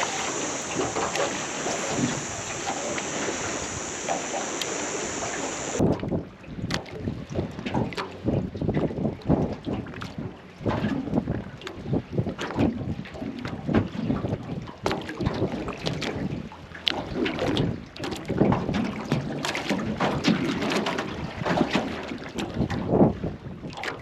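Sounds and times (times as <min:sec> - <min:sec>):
wind buffeting microphone: 0:00.0 - 0:06.3.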